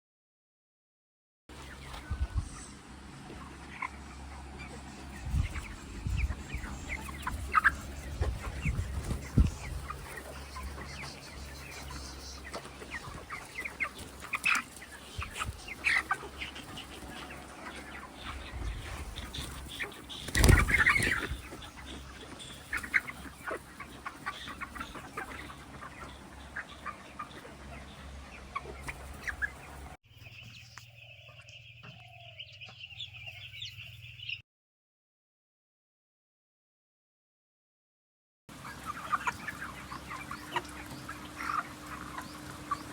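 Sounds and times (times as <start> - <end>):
chickens clucking: 1.5 - 34.4, 38.5 - 42.9.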